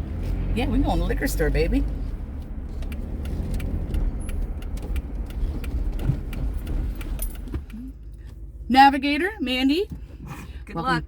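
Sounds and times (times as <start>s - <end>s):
car engine and road rumble: 0.0s - 11.0s
light clicks and rattles: 1.0s - 8.7s.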